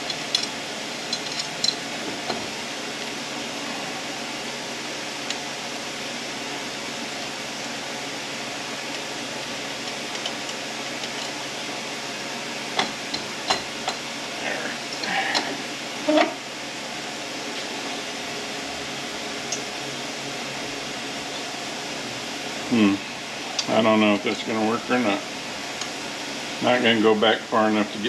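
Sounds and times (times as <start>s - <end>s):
shop fan hum: 0.0s - 28.0s.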